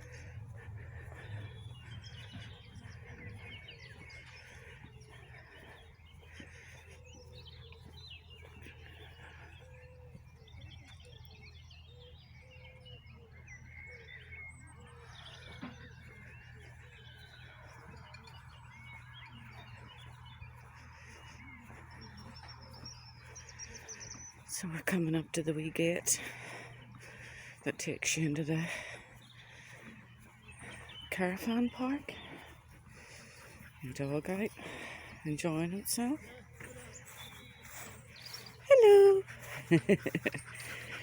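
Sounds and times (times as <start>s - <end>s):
steady low hum: 0.0s - 24.4s
songbirds chirping and singing: 0.0s - 41.0s.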